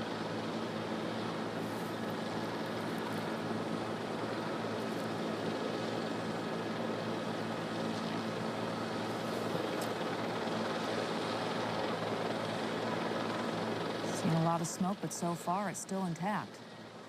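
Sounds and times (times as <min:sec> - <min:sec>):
aircraft engines droning: 0:00.0 - 0:17.0.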